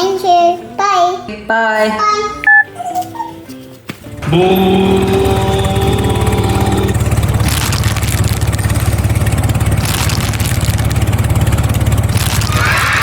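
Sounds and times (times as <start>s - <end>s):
engine running with rattling pulse: 4.2s - 13.0s.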